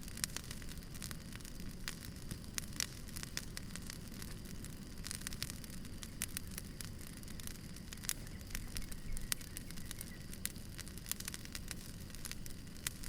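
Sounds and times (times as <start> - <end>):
low rumble of burning logs: 0.0 - 13.0
wood fire crackling: 0.0 - 13.0.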